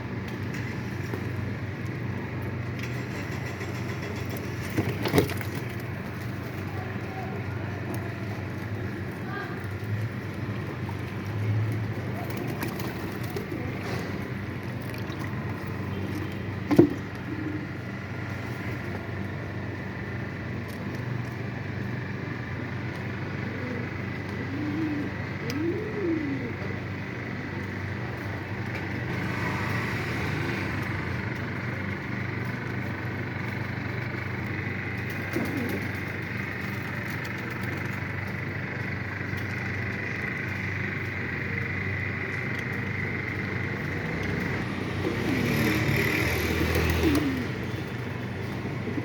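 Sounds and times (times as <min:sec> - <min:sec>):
pigeons cooing: 0:15.1 - 0:18.5, 0:23.4 - 0:27.1, 0:34.9 - 0:36.6, 0:43.7 - 0:49.0.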